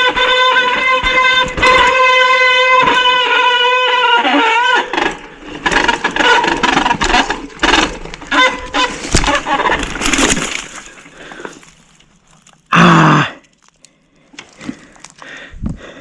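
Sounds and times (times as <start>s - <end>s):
bike brake squealing: 0.0s - 10.0s
tyres crackling over rough ground: 0.0s - 16.0s.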